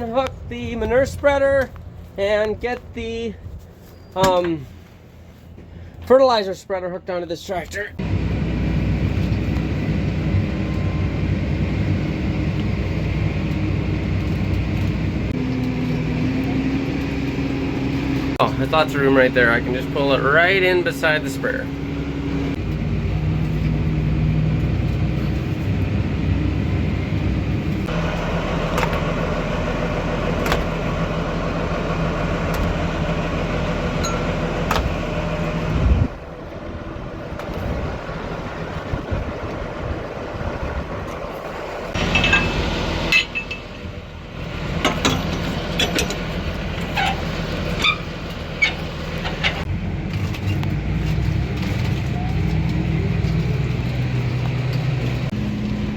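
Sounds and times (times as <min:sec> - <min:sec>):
tractor engine running: 0:08.0 - 0:55.9
metal clinks and knocks: 0:34.0 - 0:34.4, 0:42.0 - 0:43.9, 0:44.8 - 0:48.0.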